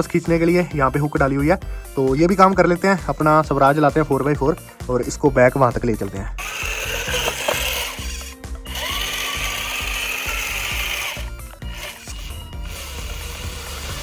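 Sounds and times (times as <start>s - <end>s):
small electric motor whine: 6.4s - 14.0s.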